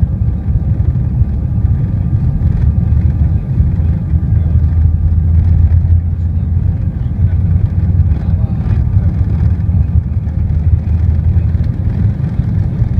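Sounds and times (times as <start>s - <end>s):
airliner engines rumbling: 0.0s - 12.9s.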